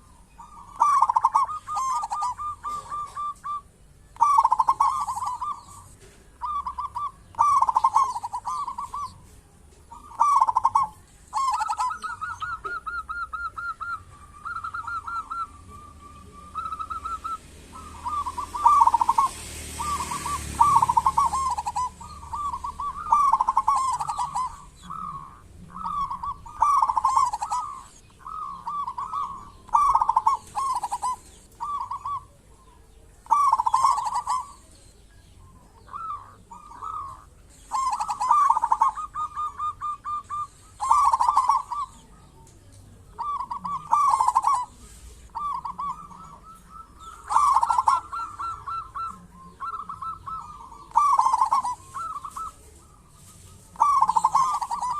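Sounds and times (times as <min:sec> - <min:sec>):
dove cooing: 0:00.0 - 0:54.9
high bird trill: 0:00.0 - 0:54.9.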